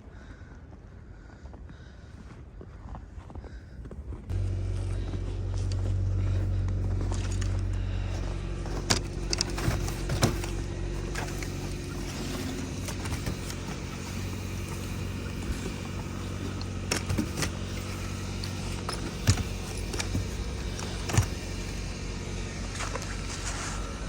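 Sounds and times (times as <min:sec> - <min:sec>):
car engine idling: 0:04.3 - 0:24.0
sharp clicks and knocks: 0:08.7 - 0:21.6.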